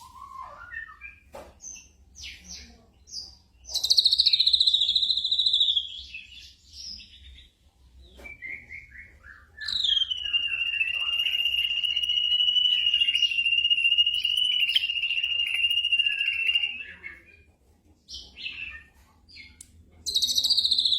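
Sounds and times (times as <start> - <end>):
bird singing rapid trills: 9.6 - 17.2, 20.1 - 20.9.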